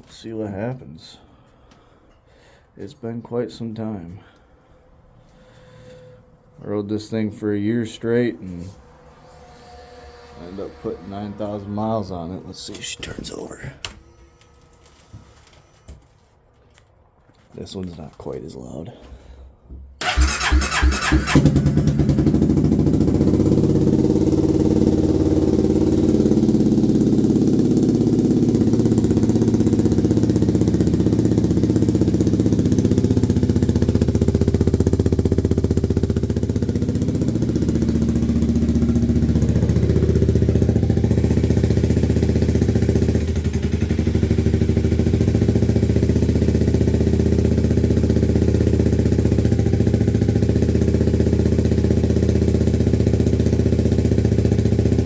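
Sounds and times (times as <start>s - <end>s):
motorcycle engine idling: 20.0s - 55.0s.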